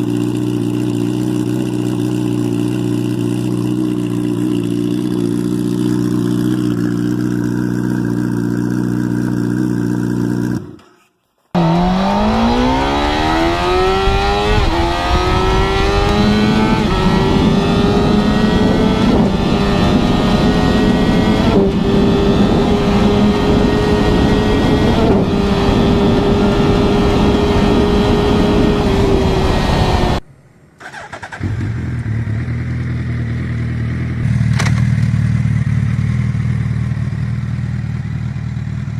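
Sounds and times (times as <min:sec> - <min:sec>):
motorcycle engine running: 0:00.0 - 0:10.8, 0:11.6 - 0:30.2, 0:30.9 - 0:38.9
motorcycle accelerating: 0:00.0 - 0:10.9, 0:11.5 - 0:30.2, 0:30.8 - 0:38.9.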